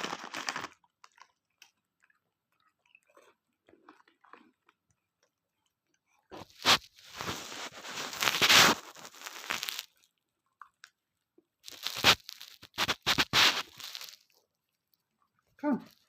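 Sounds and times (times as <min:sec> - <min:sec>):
crinkling handling noise: 0:00.0 - 0:01.8, 0:06.3 - 0:10.1, 0:11.6 - 0:15.1
sharp cracks: 0:06.6 - 0:09.9, 0:11.7 - 0:14.2.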